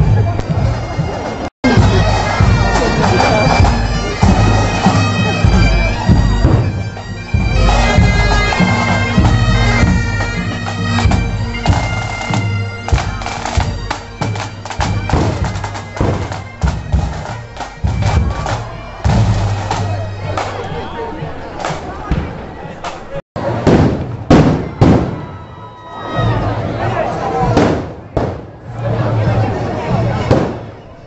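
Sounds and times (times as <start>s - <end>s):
bagpipes playing a tune: 0.0s - 20.7s.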